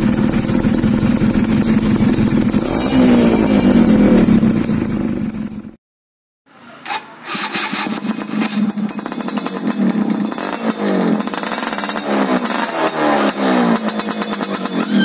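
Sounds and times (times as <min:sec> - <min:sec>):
two-stroke engine revving: 0:00.0 - 0:05.8, 0:06.9 - 0:15.0.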